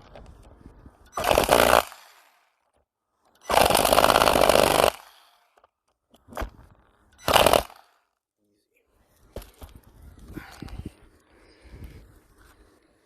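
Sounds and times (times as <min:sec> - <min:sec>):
power tool buzzing: 0:01.1 - 0:02.6, 0:03.4 - 0:05.7, 0:06.3 - 0:08.2.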